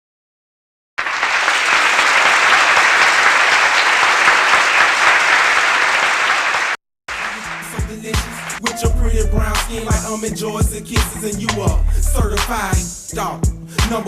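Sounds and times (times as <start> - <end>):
audience applauding: 1.0 - 8.7.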